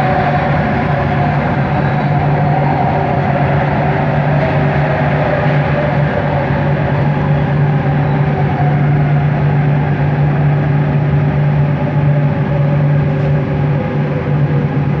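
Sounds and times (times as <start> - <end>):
train motor hum and tone: 0.0 - 15.0
train rolling noise: 0.0 - 15.0.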